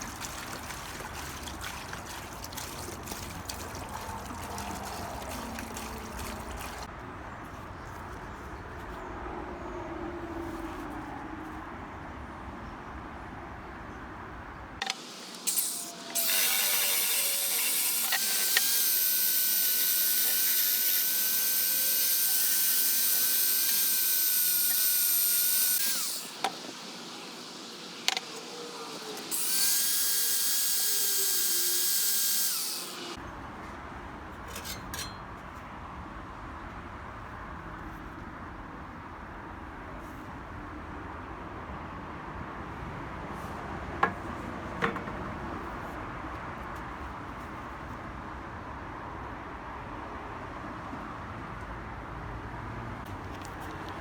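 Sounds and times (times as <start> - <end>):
high-pitched power tool running: 14.8 - 33.2.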